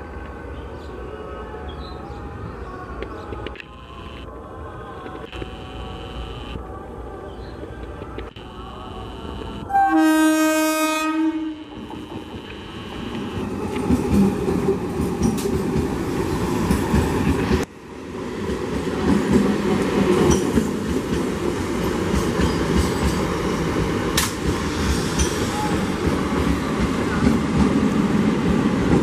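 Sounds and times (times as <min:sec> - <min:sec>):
train horn: 0:08.7 - 0:13.5
train wheels rumbling and clattering: 0:13.6 - 0:17.7, 0:18.4 - 0:29.0.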